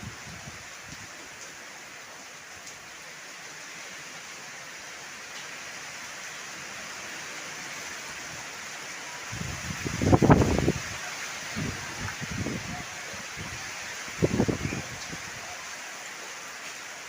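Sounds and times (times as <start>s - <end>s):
heavy rain hissing: 0.0s - 17.0s
wind gust rumbling on microphone: 9.3s - 15.4s.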